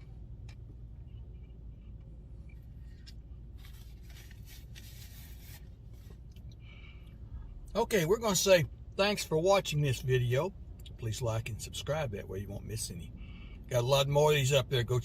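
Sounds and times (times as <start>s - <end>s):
low steady hum: 0.0s - 15.0s
scraping and rustling: 2.7s - 6.2s.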